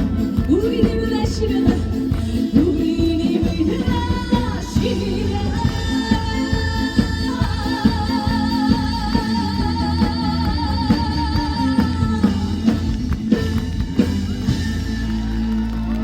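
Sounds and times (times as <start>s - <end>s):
woman singing with vibrato: 0.0s - 13.1s
live band playing: 0.0s - 16.0s.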